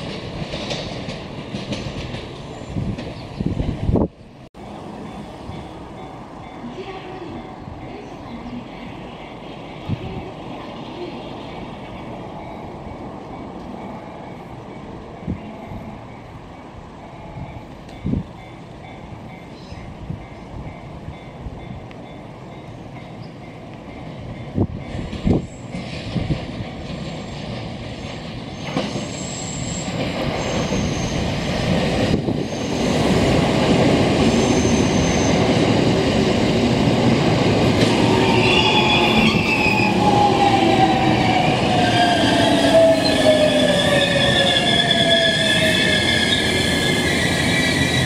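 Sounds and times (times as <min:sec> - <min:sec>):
wheels and brakes squealing: 0:28.1 - 0:31.4, 0:32.4 - 0:33.0, 0:34.3 - 0:35.5, 0:38.0 - 0:48.0.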